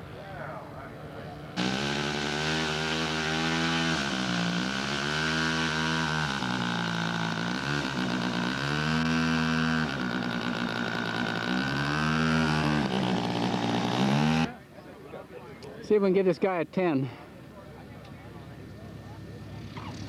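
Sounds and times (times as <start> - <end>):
model airplane engine running: 1.6 - 14.5.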